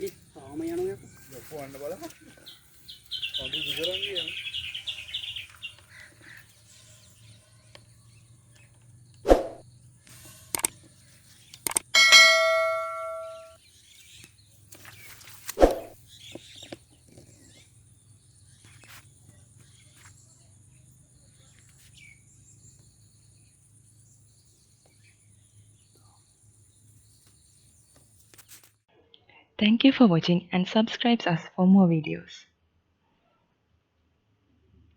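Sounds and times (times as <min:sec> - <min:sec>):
metal object clanging and ringing: 0:12.0 - 0:13.6.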